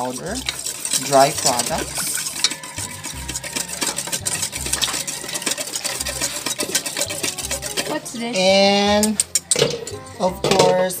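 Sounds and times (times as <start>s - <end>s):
spoon scraping mixing bowl: 0.0s - 11.0s.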